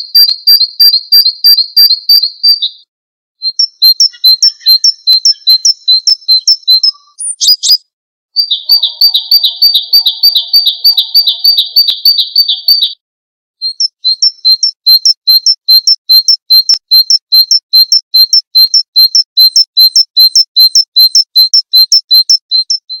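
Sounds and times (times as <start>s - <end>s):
short high bird chirps: 3.4s - 13.0s, 13.6s - 23.0s
fast high bird trill: 3.6s - 6.2s, 8.4s - 13.0s.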